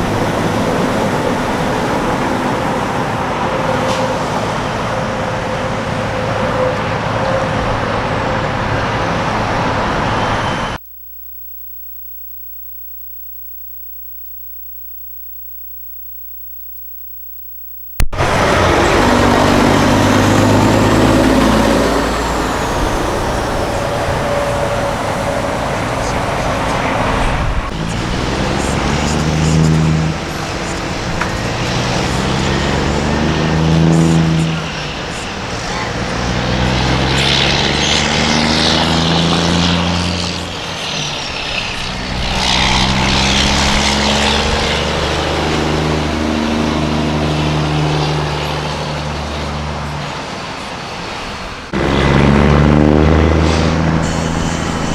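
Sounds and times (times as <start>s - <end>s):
traffic noise: 18.2s - 54.9s
truck diesel engines: 18.2s - 54.9s.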